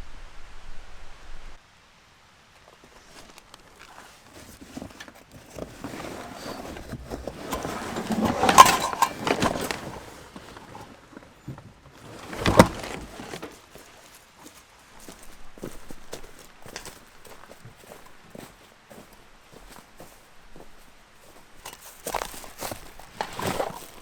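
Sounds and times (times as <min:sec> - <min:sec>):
camping gear rustling and knocking: 0:02.6 - 0:24.0
gear clattering: 0:04.4 - 0:11.1, 0:12.0 - 0:13.6.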